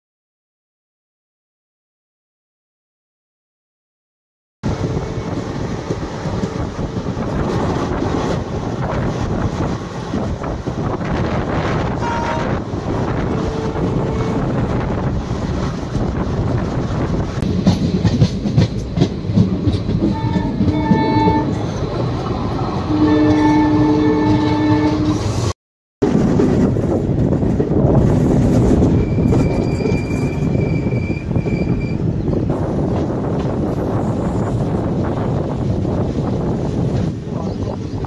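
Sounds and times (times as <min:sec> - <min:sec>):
train wheels rumbling on track: 0:04.6 - 0:38.0
train horn blasts: 0:11.8 - 0:14.8, 0:20.1 - 0:21.6, 0:22.8 - 0:25.4.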